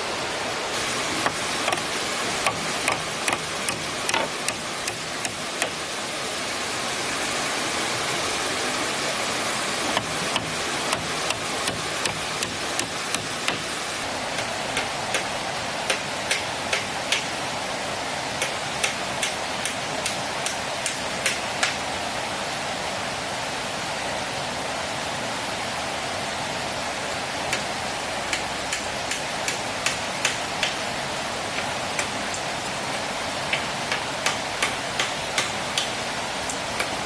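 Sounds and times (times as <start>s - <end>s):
flowing water rushing: 0.0s - 37.0s
sharp knocks: 1.2s - 5.8s, 10.0s - 13.7s.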